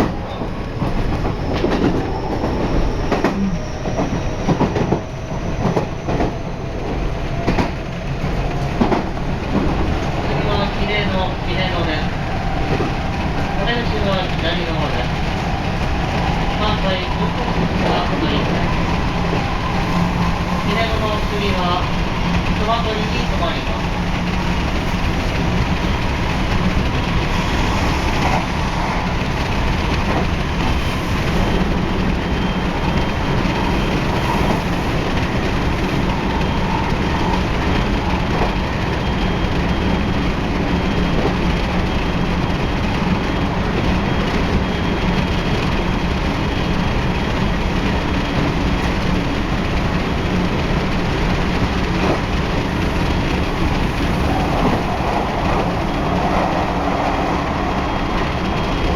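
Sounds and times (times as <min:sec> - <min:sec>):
rail-joint clatter: 0:00.0 - 0:10.8
train wheels rumbling on rail: 0:00.0 - 0:58.9.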